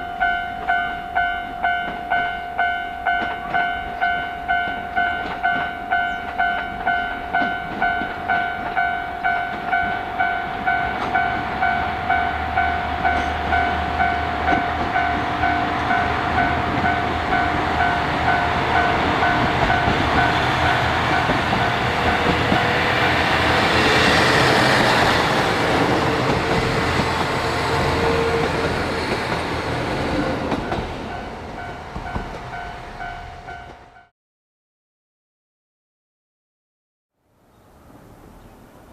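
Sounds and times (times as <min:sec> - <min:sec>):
level crossing bell dinging: 0:00.0 - 0:20.3
diesel train passing: 0:00.0 - 0:34.1.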